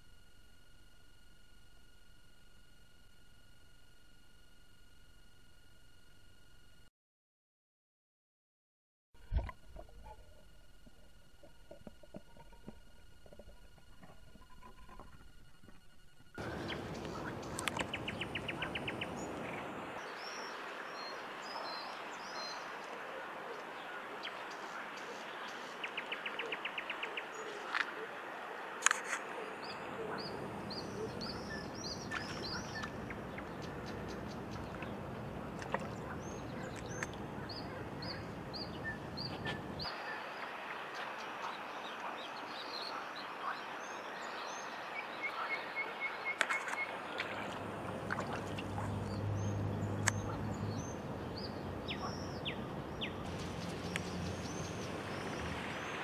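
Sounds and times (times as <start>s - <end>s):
low hum: 0.0s - 6.9s, 9.2s - 22.3s, 46.5s - 56.0s
outdoor background hiss: 15.4s - 56.0s
small birds chirping: 16.4s - 22.9s, 29.3s - 56.0s.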